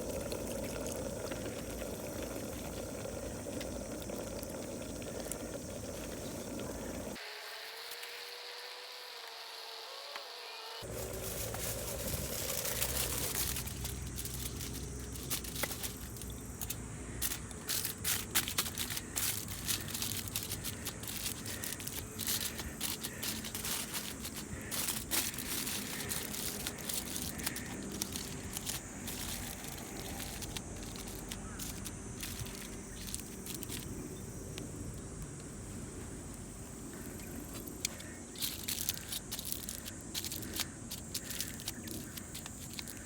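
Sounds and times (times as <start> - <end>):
wood fire crackling and popping: 10.8 - 31.9.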